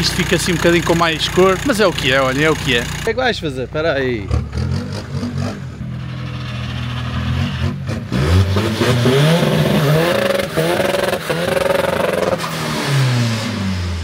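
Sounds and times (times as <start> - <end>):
diesel engine revving: 0.0 - 14.0.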